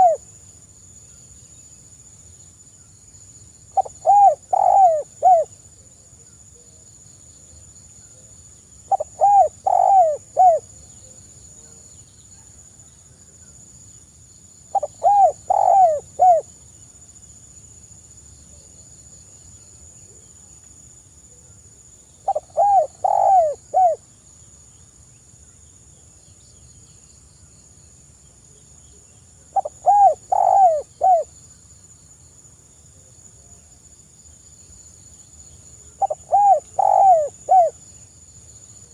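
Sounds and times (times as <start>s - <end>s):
dove cooing: 0.0s - 0.2s, 3.8s - 5.5s, 8.9s - 10.7s, 14.7s - 16.5s, 22.3s - 24.0s, 29.6s - 31.3s, 36.0s - 37.8s
faint high-pitched hiss: 0.0s - 38.9s.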